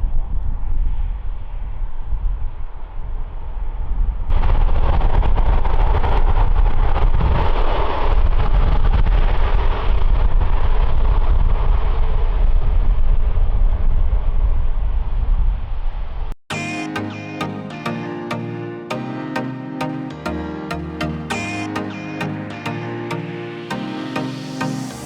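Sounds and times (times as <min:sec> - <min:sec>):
wind rumble on microphone: 0:00.0 - 0:16.3.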